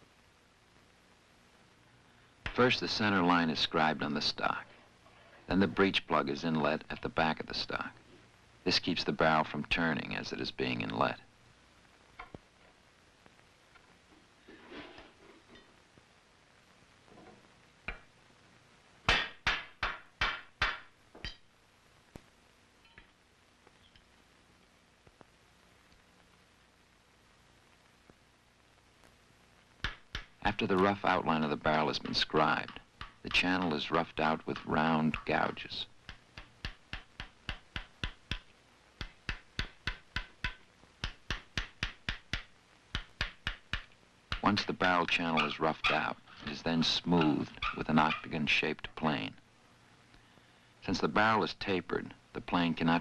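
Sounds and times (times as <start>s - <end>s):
gouge tapping into wood: 29.8s - 30.4s, 32.0s - 45.1s.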